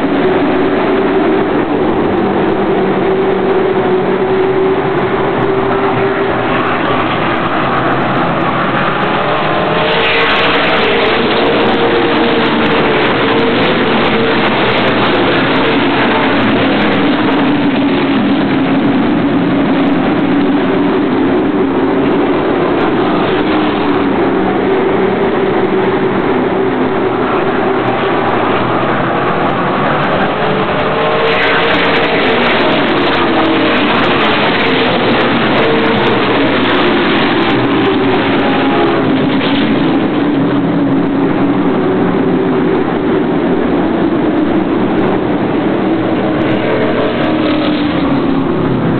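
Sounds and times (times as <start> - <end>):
race car engines passing: 0.0 - 48.9
rushing noise surge: 0.0 - 48.9.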